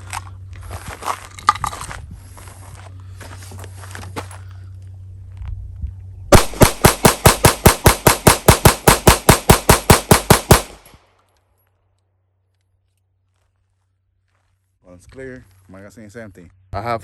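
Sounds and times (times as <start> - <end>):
low steady hum: 0.0 - 17.0
pistol fired rapidly: 6.3 - 11.0.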